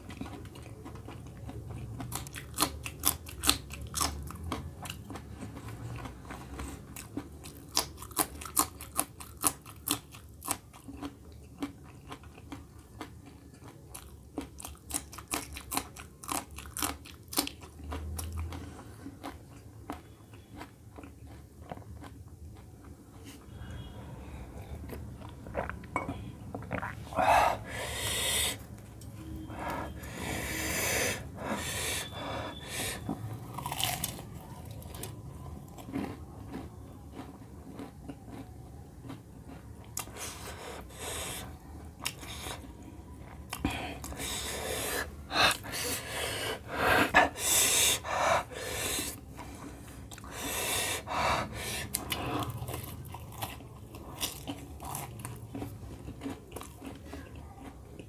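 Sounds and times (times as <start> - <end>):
crisp pastry crunching: 0.0 - 23.9, 33.4 - 40.5, 51.9 - 58.0
loud breaths: 27.1 - 28.6, 29.5 - 33.1, 43.6 - 52.5.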